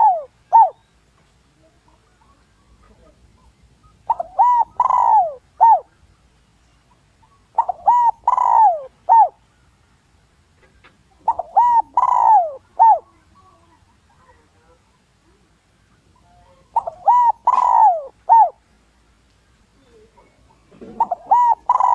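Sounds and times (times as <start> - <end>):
dove cooing: 0.0 - 0.8, 1.6 - 6.0, 7.2 - 9.5, 11.1 - 15.4, 16.1 - 18.6, 19.8 - 21.9.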